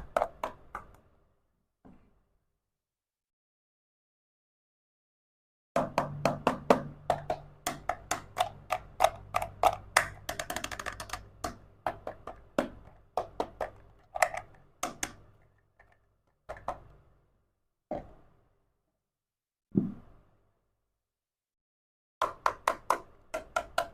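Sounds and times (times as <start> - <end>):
toy kitchen pieces clicking: 8.2 - 11.6, 13.6 - 16.7.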